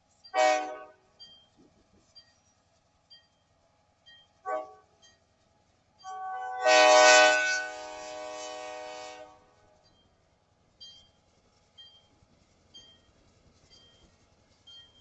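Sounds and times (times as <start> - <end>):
locomotive horn blast: 0.4 - 1.0, 6.0 - 9.5.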